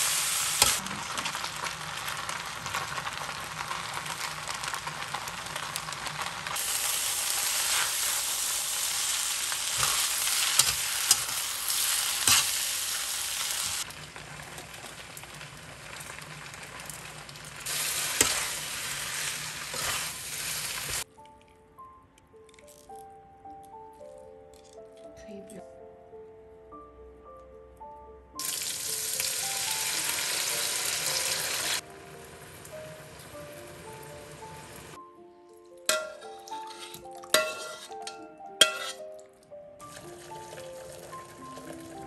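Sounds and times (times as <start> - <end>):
food sizzling in a hot pan: 0.0 - 21.1, 28.4 - 35.0, 35.9 - 39.0, 39.8 - 42.0.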